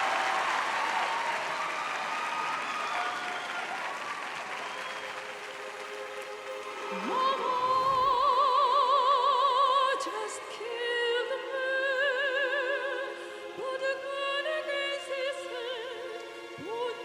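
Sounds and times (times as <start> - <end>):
woman singing opera: 6.6 - 17.0.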